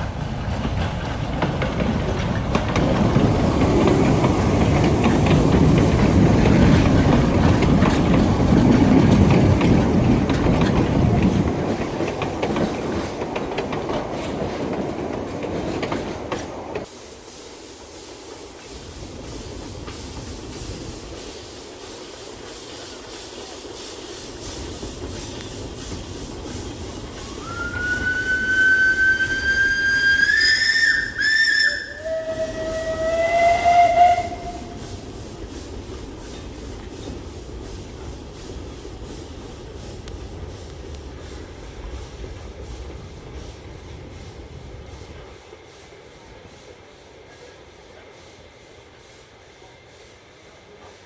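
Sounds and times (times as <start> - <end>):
steam locomotive running: 0.0 - 51.0
steam whistle: 27.2 - 35.0.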